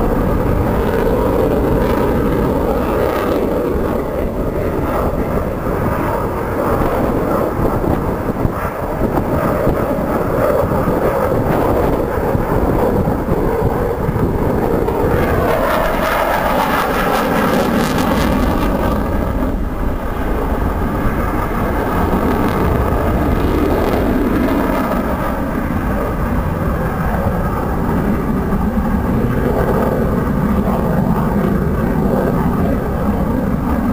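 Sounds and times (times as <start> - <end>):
aircraft engine flying past: 0.0 - 33.9.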